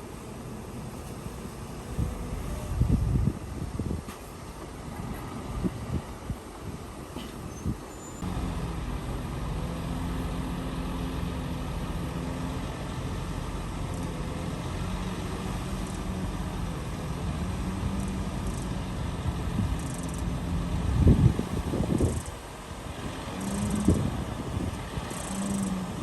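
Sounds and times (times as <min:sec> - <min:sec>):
heavy diesel engine running: 0:08.0 - 0:26.0.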